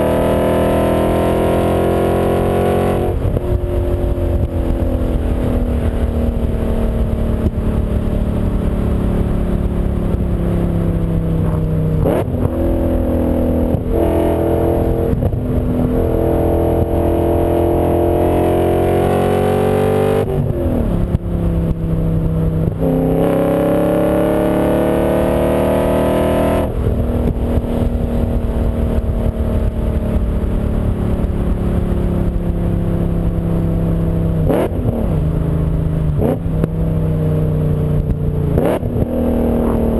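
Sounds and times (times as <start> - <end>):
car engine revving through gears: 0.0 - 4.8, 11.4 - 21.8, 22.4 - 28.0, 34.4 - 35.3, 36.2 - 36.7, 38.0 - 39.9.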